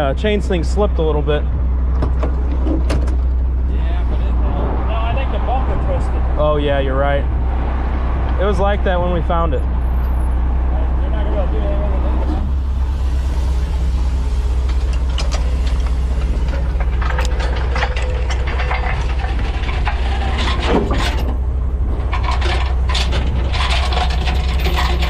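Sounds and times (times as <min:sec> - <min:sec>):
diesel truck engine idling: 0:00.0 - 0:25.0
chain clanks and rattles: 0:14.5 - 0:25.0.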